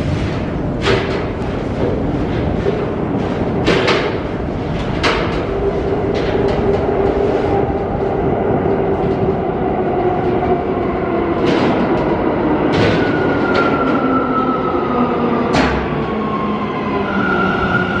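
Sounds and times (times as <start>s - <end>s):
wheels clicking over rails: 0.0s - 14.0s
train wheels rumbling: 0.0s - 18.0s.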